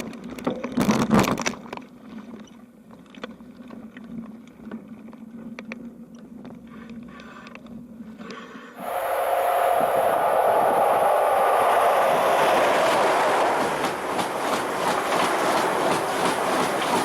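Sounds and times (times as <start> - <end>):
train wheels rumbling on rails: 8.8 - 17.0
wheels clicking over rail joints: 10.2 - 17.0.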